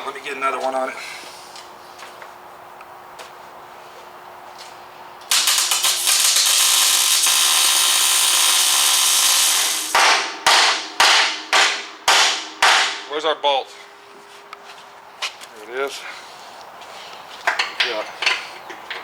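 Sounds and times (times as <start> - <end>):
welding arc crackling: 5.3 - 10.4.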